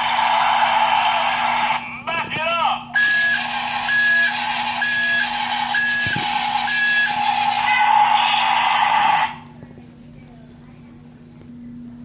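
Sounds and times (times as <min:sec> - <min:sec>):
toy power tool whirring buzz: 0:03.0 - 0:08.3.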